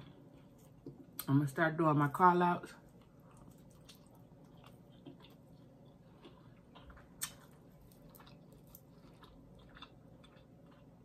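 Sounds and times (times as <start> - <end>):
chewing and mouth clicks: 2.9 - 11.0.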